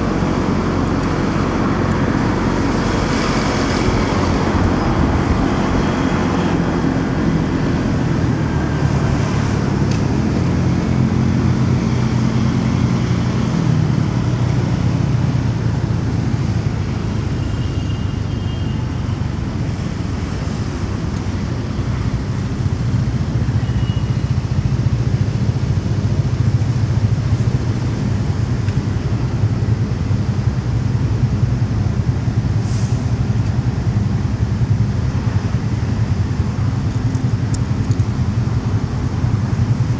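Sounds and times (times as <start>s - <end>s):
wind noise: 0.0s - 13.1s
road noise: 0.0s - 39.9s.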